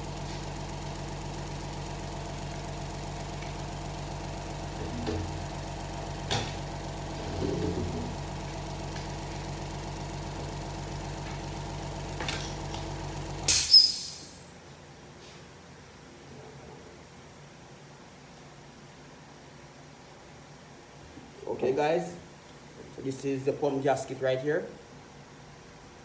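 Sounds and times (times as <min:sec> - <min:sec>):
air compressor running: 0:00.0 - 0:14.5
compressor hiss burst: 0:13.4 - 0:14.5.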